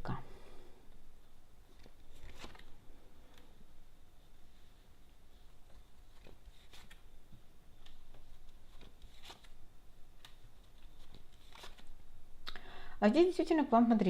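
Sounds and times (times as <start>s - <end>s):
cards rustling: 1.6s - 3.7s, 5.1s - 12.1s.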